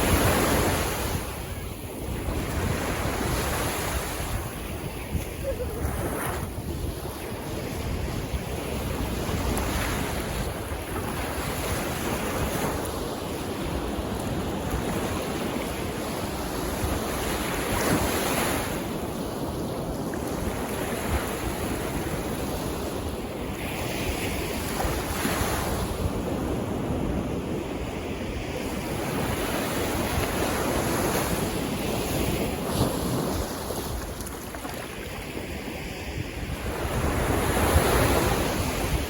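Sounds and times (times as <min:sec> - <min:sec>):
sea waves washing in: 0:00.0 - 0:19.4
wind buffeting microphone: 0:00.0 - 0:39.0.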